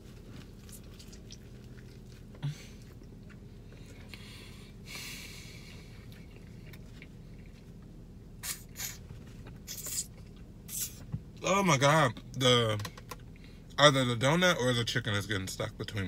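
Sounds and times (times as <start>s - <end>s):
person chewing food: 0.0s - 4.3s, 5.6s - 8.6s
steady low hum: 0.0s - 16.0s.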